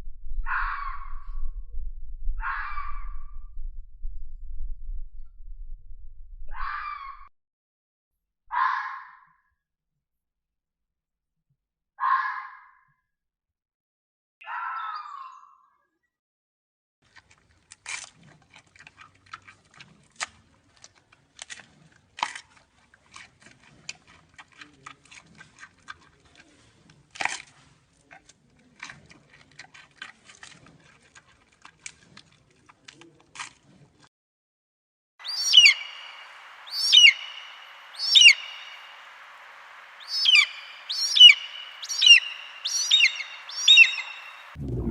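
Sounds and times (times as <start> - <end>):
bird call with falling pitch: 35.2 - 44.6.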